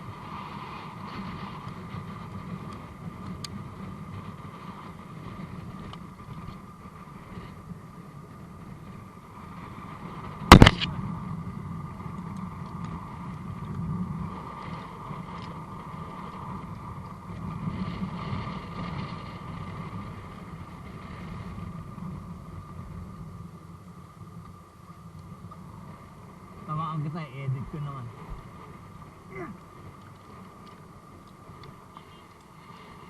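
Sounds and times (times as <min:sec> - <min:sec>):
constant hum: 0:00.0 - 0:33.0
wind noise: 0:00.0 - 0:33.0
loud sharp knock: 0:10.5 - 0:10.8.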